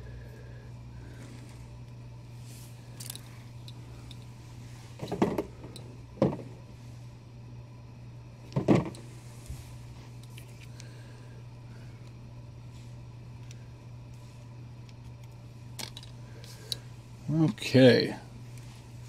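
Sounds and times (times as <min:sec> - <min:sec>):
low electrical hum: 0:00.0 - 0:19.0
knocks and rustles: 0:04.9 - 0:06.6, 0:08.5 - 0:09.6.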